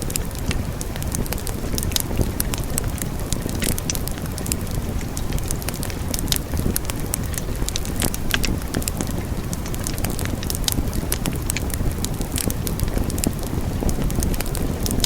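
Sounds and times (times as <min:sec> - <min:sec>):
burning wood crackling and popping: 0:00.0 - 0:15.0
fire flames rumbling: 0:00.0 - 0:15.0.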